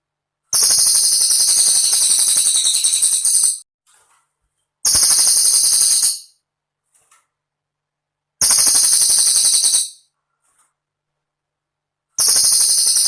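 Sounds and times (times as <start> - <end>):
bird rattling trills: 0.6 - 3.6, 4.9 - 6.3, 8.4 - 10.0, 12.2 - 13.0.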